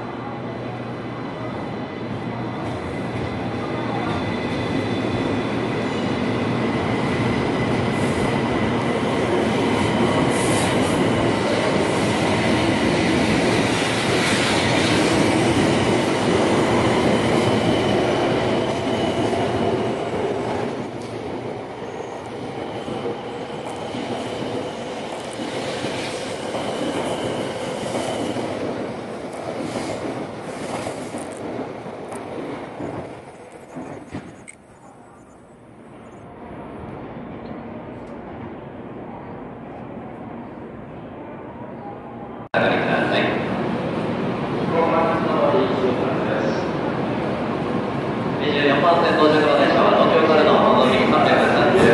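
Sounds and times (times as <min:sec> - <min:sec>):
high train whine: 0:00.0 - 0:51.9
train cars rumbling: 0:42.6 - 0:51.9.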